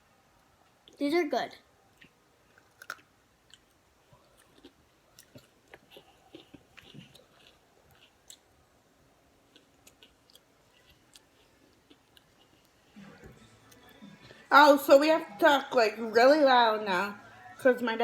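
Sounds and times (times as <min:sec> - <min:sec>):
faint chewing: 0:01.9 - 0:14.5.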